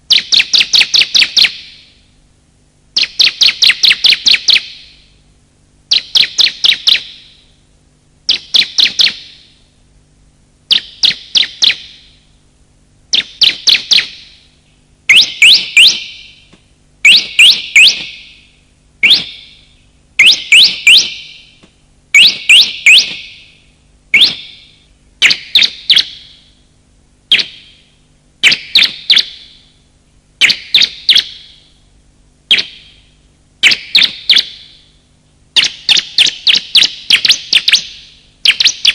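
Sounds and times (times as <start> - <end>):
bird sharp high chirps: 0.1 - 2.0, 3.0 - 5.1, 5.9 - 7.4, 8.3 - 9.6, 10.7 - 12.2, 13.1 - 14.5, 15.1 - 21.6, 22.2 - 26.6, 27.3 - 29.7, 30.4 - 31.8, 32.5 - 34.9, 35.6 - 38.9.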